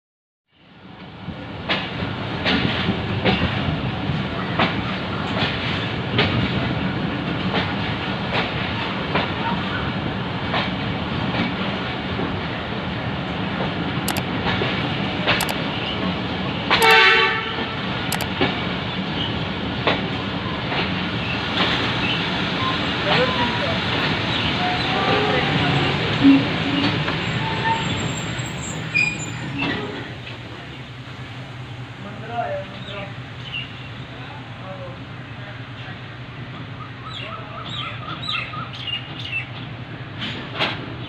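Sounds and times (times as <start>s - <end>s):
train running rumble: 0.7s - 41.0s
train horn blast: 16.8s - 17.9s, 24.6s - 26.6s.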